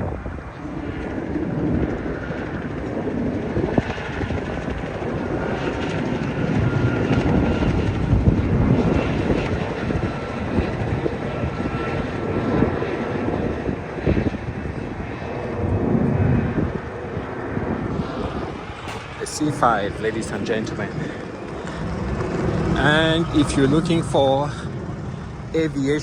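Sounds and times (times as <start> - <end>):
jet aircraft flying over: 0.0 - 26.0.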